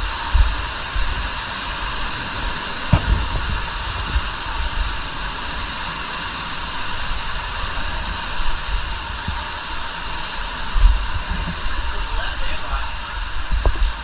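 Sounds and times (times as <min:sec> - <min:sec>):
water falling in cave: 0:00.0 - 0:14.0
low knocks: 0:02.9 - 0:04.3.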